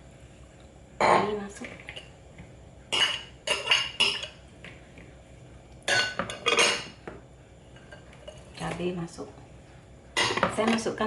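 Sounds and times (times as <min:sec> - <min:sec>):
spoon and dishes clinking: 0:02.9 - 0:04.4, 0:05.9 - 0:07.0.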